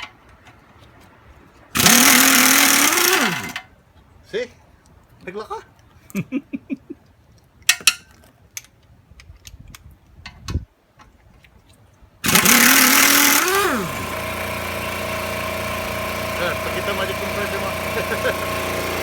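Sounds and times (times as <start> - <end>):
air compressor running: 1.8 - 3.6, 12.2 - 19.0.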